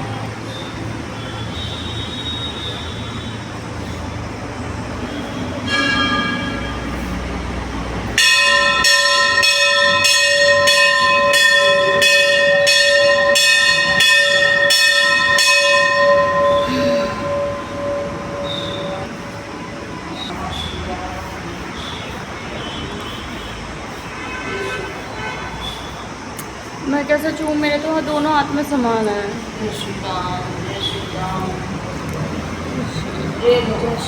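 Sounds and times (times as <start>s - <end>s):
temple bell ringing: 0.0s - 20.4s
different bell struck: 5.6s - 6.9s, 8.2s - 19.6s.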